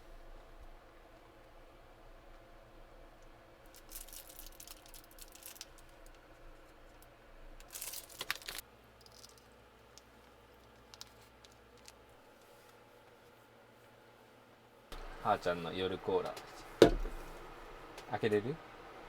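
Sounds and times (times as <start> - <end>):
packaging crinkling and tearing: 3.7 - 6.1, 7.6 - 9.4.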